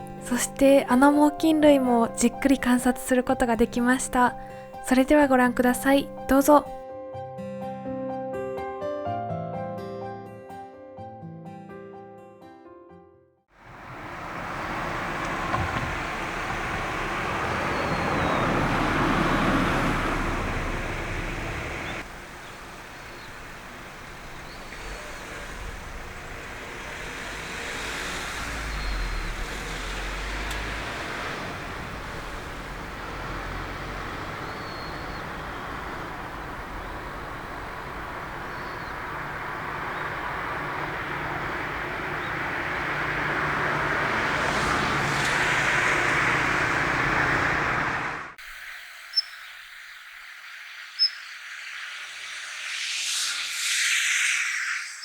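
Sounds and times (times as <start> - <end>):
car passing: 0.0 - 6.8, 13.6 - 55.0
high thin bird calls: 48.6 - 55.0.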